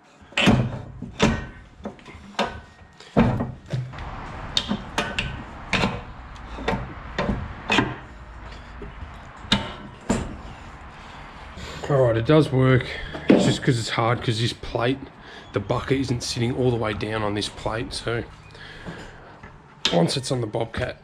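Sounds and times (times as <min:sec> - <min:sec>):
metal clunks and knocks: 0:00.4 - 0:11.8.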